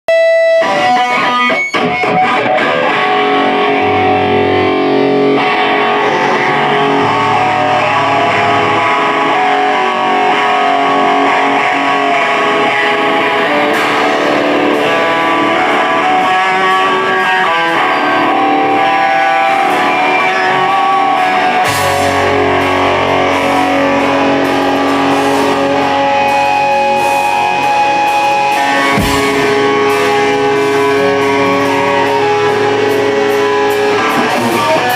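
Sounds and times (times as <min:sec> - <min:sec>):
electric guitar with effects: 0:00.0 - 0:34.9
rock band playing live: 0:00.1 - 0:34.9
deep low bass notes: 0:03.5 - 0:16.2, 0:21.6 - 0:34.9.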